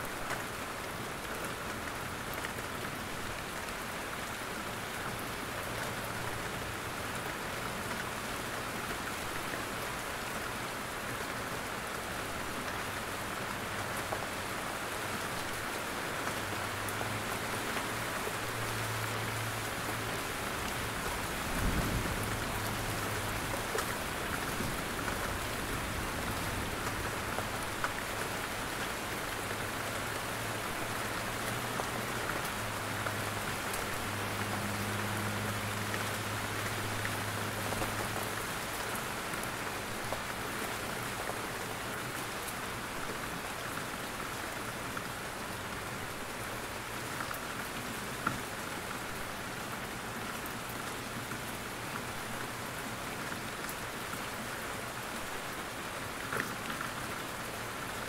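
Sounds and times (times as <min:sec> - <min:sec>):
rain falling in forest: 0:00.0 - 0:58.0.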